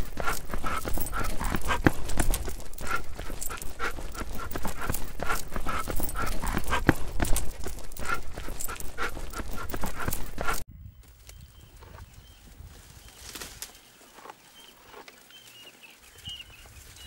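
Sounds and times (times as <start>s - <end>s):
dog panting: 0.0s - 10.6s.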